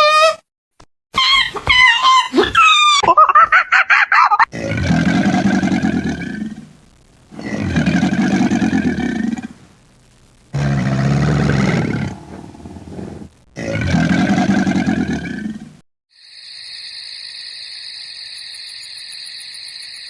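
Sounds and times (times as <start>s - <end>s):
animal deep roaring calls: 4.5s - 9.6s, 10.5s - 15.8s.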